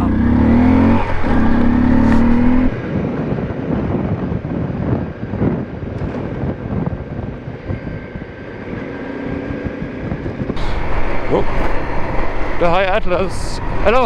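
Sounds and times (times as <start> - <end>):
motorcycle engine pulling hard: 0.0 - 2.9
road rush: 0.0 - 4.0, 10.5 - 14.0.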